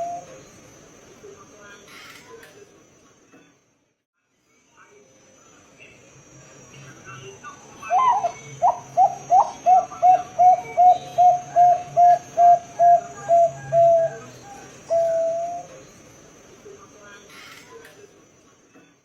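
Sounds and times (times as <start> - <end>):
dove cooing: 0.0 - 0.4, 7.9 - 15.7.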